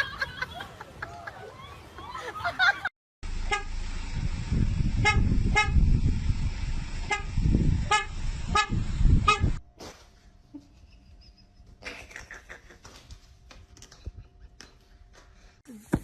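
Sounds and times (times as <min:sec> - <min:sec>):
low vehicle rumble: 0:03.2 - 0:09.7
car horn tooting: 0:03.5 - 0:03.8, 0:05.0 - 0:05.8, 0:07.1 - 0:09.6.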